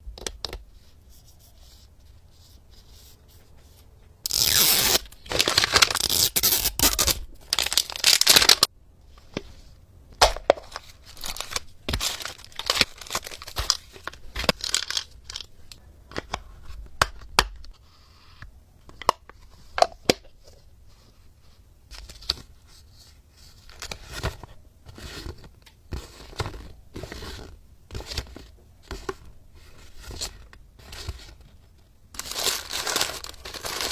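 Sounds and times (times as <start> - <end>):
plastic packaging tearing: 4.3 - 8.7, 11.1 - 15.5, 32.2 - 33.9
plastic pieces clicking and crinkling: 11.1 - 15.8, 32.2 - 33.9.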